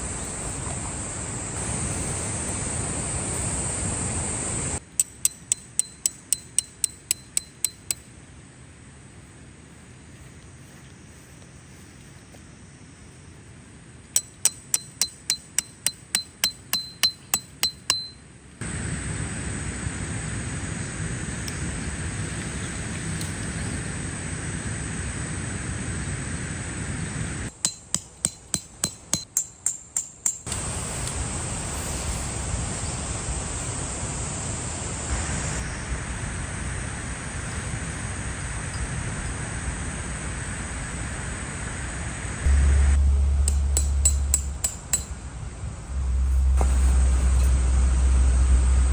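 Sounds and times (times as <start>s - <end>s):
even rushing hiss: 0.0s - 8.0s, 29.9s - 48.9s
hammer striking metal tent stake: 4.8s - 8.1s, 14.2s - 18.2s, 27.5s - 31.1s, 43.1s - 45.2s, 45.9s - 47.7s.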